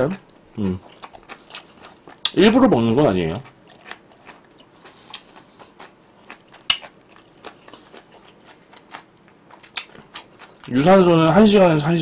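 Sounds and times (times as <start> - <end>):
wet mouth chewing clicks: 0.3 - 2.4, 3.4 - 10.7.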